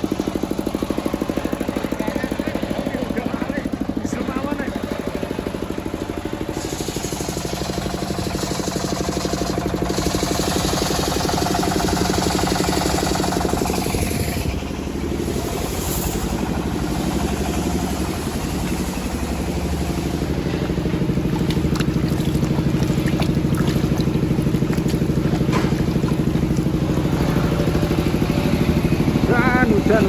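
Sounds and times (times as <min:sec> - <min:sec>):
sawmill engine throbbing: 0:00.0 - 0:30.0
saw cutting hiss: 0:06.5 - 0:20.5.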